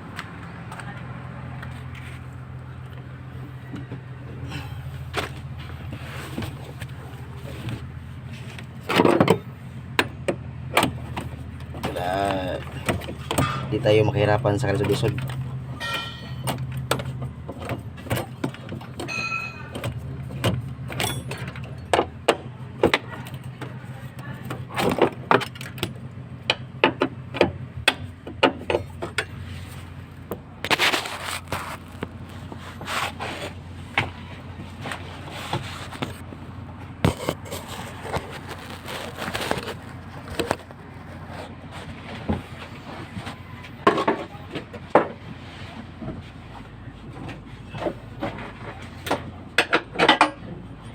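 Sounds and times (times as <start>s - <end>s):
hand tools clinking on metal: 15.8s - 16.6s, 19.0s - 20.0s.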